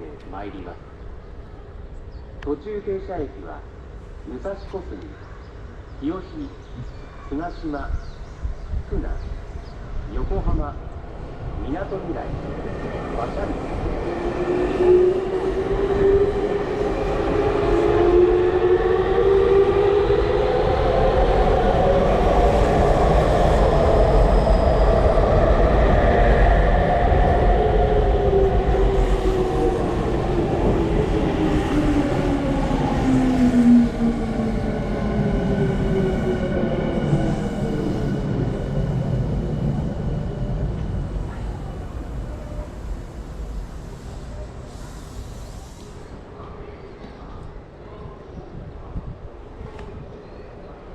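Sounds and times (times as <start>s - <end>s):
electric train rumbling: 8.6s - 47.4s.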